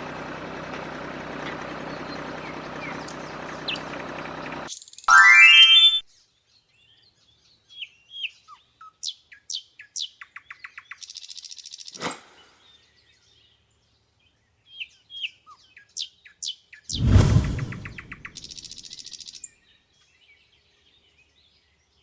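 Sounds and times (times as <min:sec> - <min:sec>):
whoosh sweeping down in pitch: 0:05.1 - 0:06.0.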